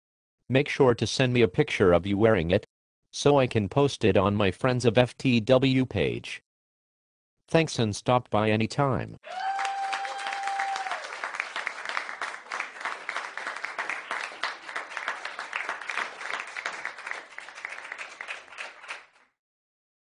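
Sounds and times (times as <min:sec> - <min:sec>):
crowd applause: 0:09.2 - 0:19.3.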